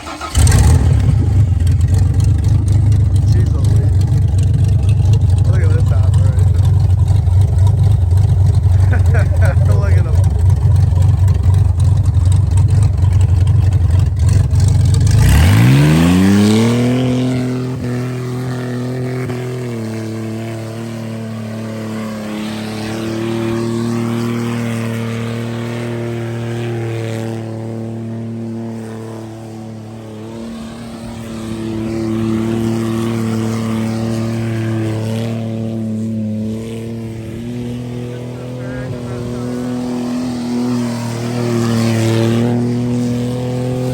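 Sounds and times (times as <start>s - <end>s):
car engine revving: 0.0s - 43.9s.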